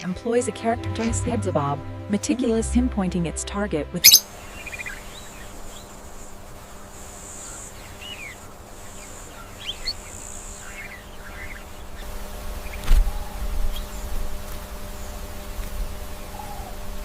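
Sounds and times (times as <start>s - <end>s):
faint steady hum: 1.8s - 17.0s
bird chirps: 4.0s - 12.0s
high insect buzz: 4.0s - 17.0s.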